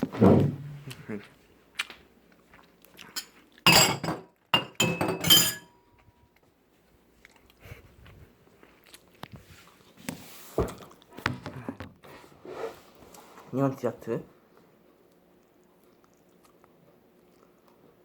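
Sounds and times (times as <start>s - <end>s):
tableware clinking on a table: 3.2s - 5.9s.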